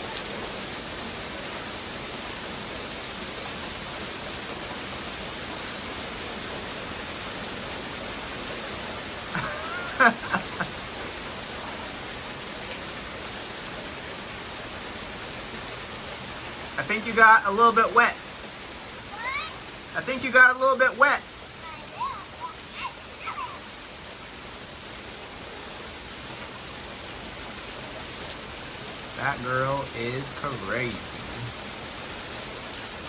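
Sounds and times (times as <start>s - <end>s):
rain falling: 0.0s - 33.0s
voice-like cries: 9.4s - 10.6s, 21.9s - 23.8s.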